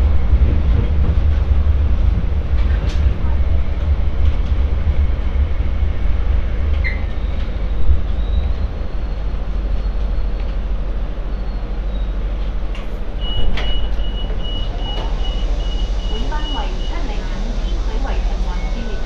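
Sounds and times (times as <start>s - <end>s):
low rumble of train wheels: 0.0s - 19.0s
faint high whine: 13.2s - 19.0s.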